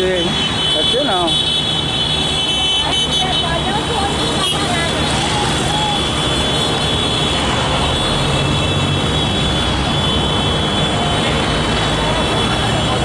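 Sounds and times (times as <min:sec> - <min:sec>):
motorcycle engines droning: 0:02.8 - 0:13.0.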